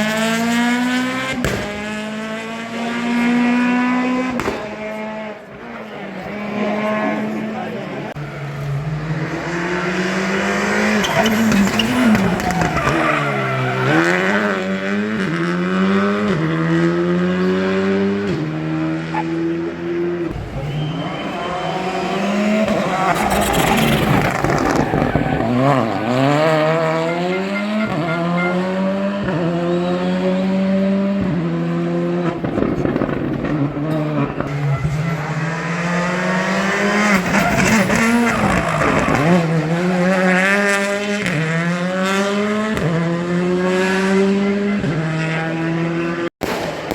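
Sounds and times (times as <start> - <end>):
rally car engines revving: 0.0 - 46.3
tyres squealing: 10.1 - 14.6, 20.6 - 29.0, 37.1 - 40.7.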